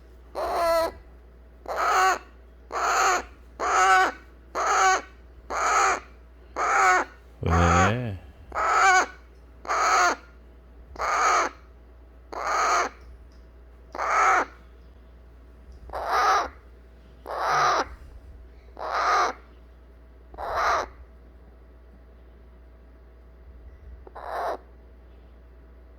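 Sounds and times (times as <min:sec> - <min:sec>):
parrot chick begging calls: 0:00.4 - 0:00.9, 0:01.7 - 0:07.1, 0:11.0 - 0:11.6, 0:12.3 - 0:13.0, 0:14.0 - 0:14.5, 0:15.9 - 0:16.5, 0:17.3 - 0:17.8, 0:18.8 - 0:19.4.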